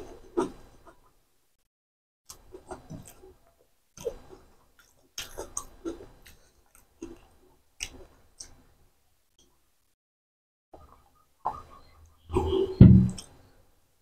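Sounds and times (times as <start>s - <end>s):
person chewing food: 2.3s - 8.6s.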